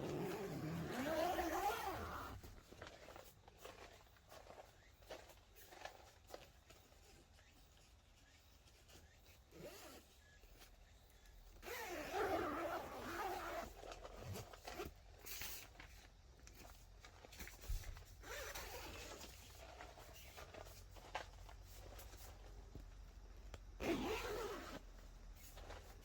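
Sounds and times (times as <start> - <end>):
zipper being pulled: 0.0 - 2.5, 9.5 - 10.3, 11.6 - 15.6, 18.2 - 19.6, 23.8 - 25.0.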